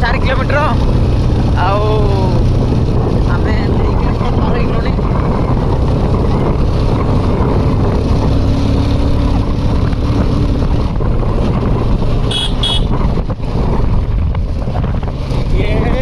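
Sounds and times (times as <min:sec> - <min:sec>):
vehicle engine and road rumble: 0:00.0 - 0:16.0
high horn beeps: 0:12.2 - 0:13.0.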